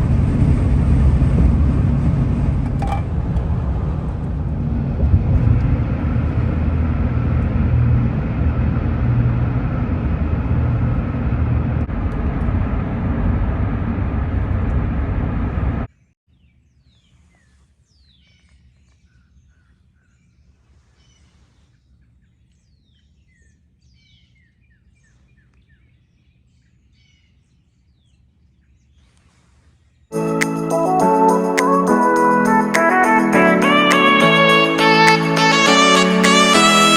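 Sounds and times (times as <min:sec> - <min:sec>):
vehicle driving on road: 0:00.0 - 0:15.9.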